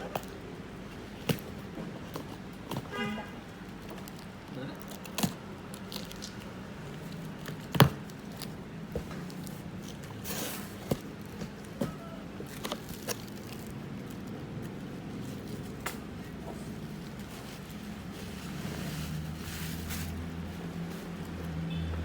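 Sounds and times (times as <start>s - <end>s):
handling clicks and knocks: 0.0s - 17.3s.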